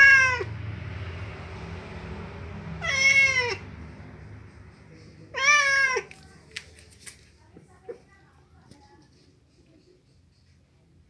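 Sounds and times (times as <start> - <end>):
cat meowing: 0.0 - 0.5, 2.8 - 3.6, 5.3 - 6.2.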